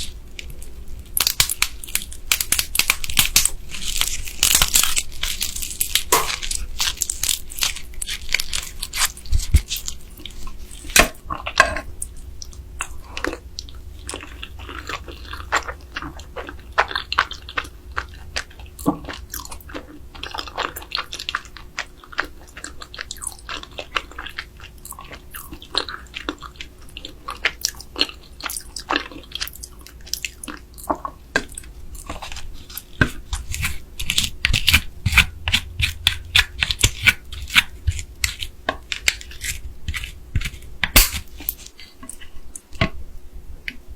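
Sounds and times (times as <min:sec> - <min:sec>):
wet chewing: 0:00.0 - 0:43.0
crab shell cracking between teeth: 0:01.2 - 0:09.6.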